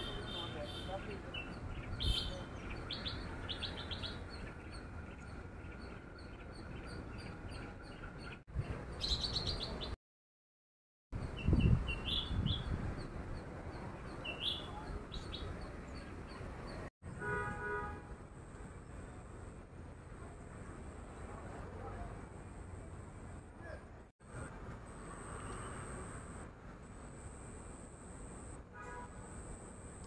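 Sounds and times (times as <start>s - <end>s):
small birds chirping: 0.0s - 10.0s, 11.2s - 16.9s
low wind rumble: 11.2s - 16.9s.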